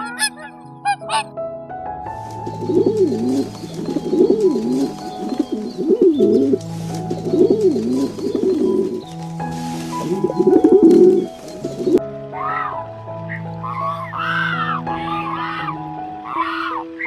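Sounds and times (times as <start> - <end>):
background music with held notes: 0.0 - 17.0
pigeon cooing: 2.4 - 9.0, 10.0 - 12.7.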